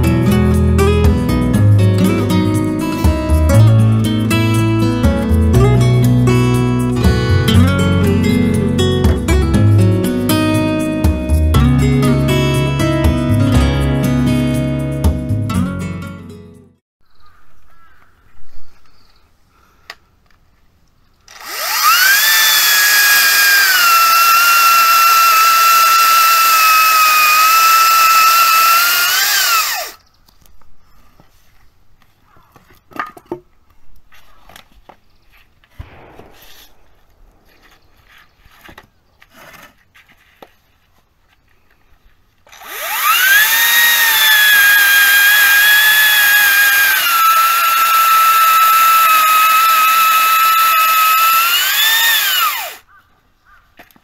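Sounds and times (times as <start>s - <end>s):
electric chainsaw whining: 21.3s - 30.0s, 42.5s - 52.8s.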